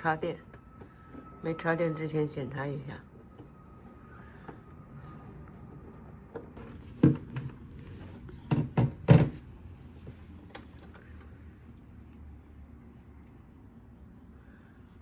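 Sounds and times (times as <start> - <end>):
knocks and thumps on fridge: 8.5 - 9.4.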